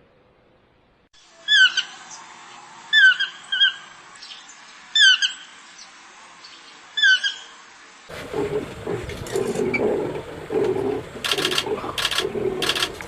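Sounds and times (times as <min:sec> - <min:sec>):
bird squawking: 0:01.4 - 0:02.2, 0:02.9 - 0:05.5, 0:07.0 - 0:07.5.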